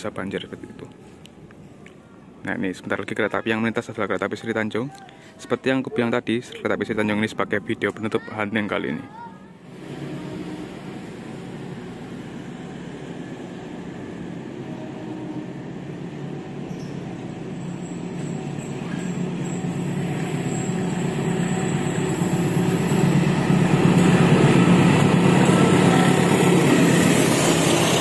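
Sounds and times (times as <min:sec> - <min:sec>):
locomotive engine and rolling noise: 0:00.0 - 0:28.0.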